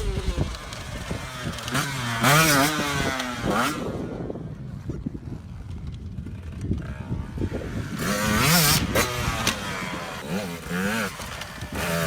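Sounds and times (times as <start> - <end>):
dirt bike engine revving: 0.0 - 4.5, 6.4 - 12.0.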